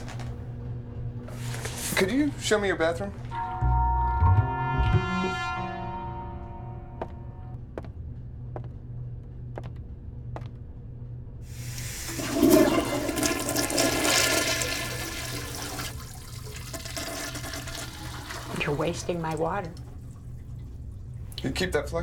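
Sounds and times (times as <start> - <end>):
steady low hum: 0.0 - 13.2
toilet flushing: 11.5 - 21.8.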